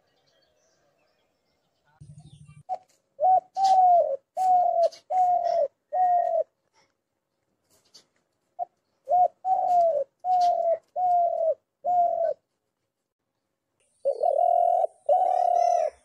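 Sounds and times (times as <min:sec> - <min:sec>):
dove cooing: 0:02.2 - 0:06.6, 0:08.6 - 0:12.4, 0:14.0 - 0:16.0.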